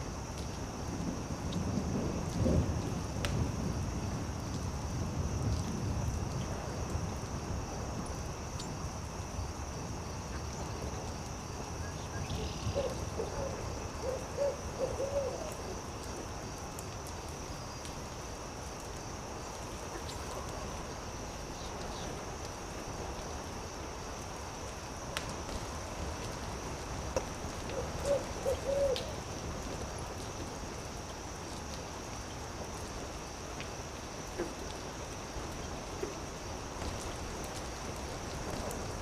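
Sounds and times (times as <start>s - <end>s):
campfire crackles: 0.0s - 39.0s
high insect drone: 0.0s - 39.0s
owl hooting: 12.8s - 15.5s, 27.7s - 29.2s.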